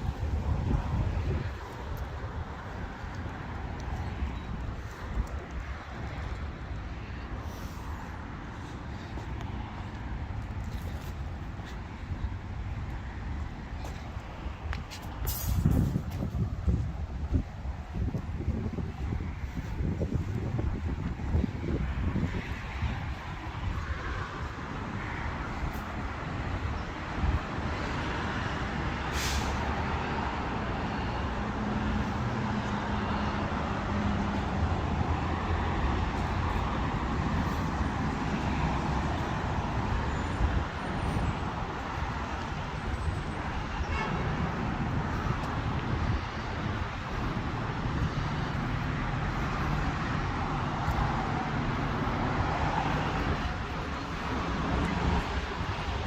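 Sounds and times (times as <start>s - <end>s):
heavy vehicles passing: 0.0s - 56.0s
short hiss: 15.2s - 15.8s, 29.1s - 29.6s.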